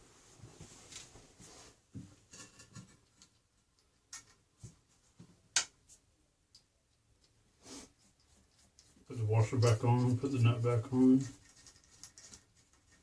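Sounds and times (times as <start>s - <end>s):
clicks and knocks of toilet parts: 2.0s - 4.7s.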